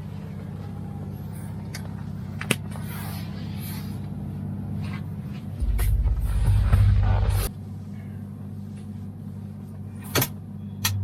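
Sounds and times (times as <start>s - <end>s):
diesel truck engine running: 0.0s - 11.0s
loud low drone: 5.6s - 8.2s.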